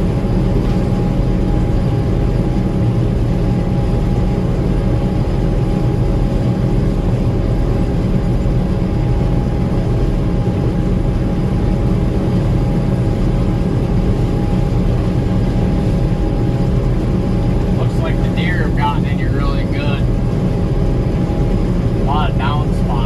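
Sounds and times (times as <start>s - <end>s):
faint steady whine: 0.0s - 23.0s
combine harvester rumbling: 6.5s - 23.0s.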